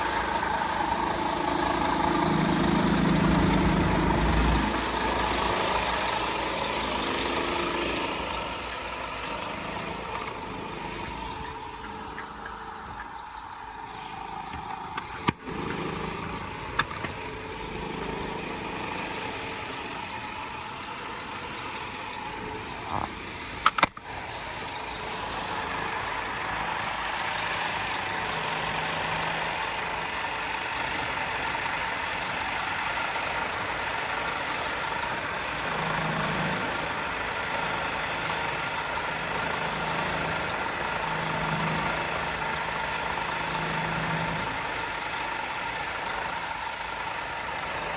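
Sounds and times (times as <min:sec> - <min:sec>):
diesel truck engine running: 0:00.0 - 0:47.9
sharp clicks or knocks: 0:16.8 - 0:17.2, 0:23.6 - 0:24.1.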